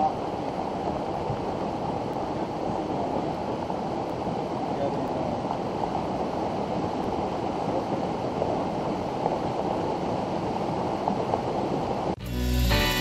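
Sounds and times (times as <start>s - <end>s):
water rushing over rocks: 0.0s - 12.2s.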